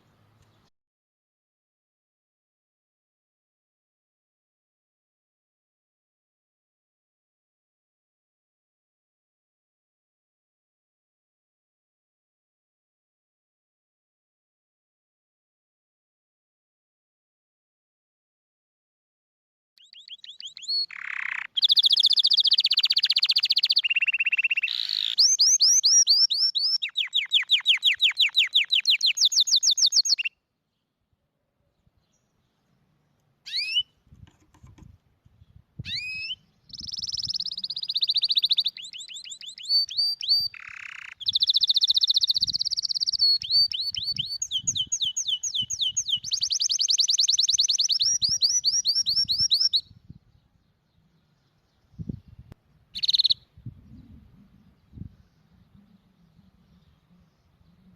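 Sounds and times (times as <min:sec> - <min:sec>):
canary singing rapid trills: 0:19.8 - 0:30.4, 0:33.4 - 0:33.9, 0:35.8 - 0:49.9, 0:52.9 - 0:53.6.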